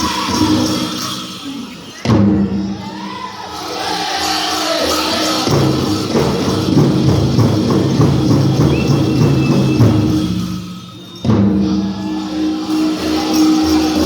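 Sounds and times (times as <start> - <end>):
group singing: 0.0 - 1.3, 2.4 - 6.9, 11.5 - 14.0
big drum beating: 4.8 - 12.9.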